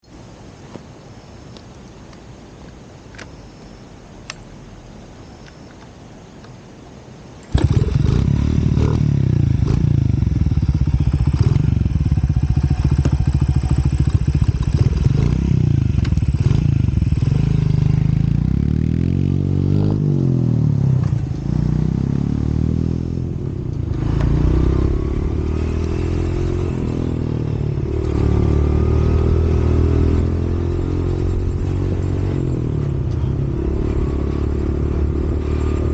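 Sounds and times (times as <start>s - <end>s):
engine starting and revving: 7.5s - 17.9s.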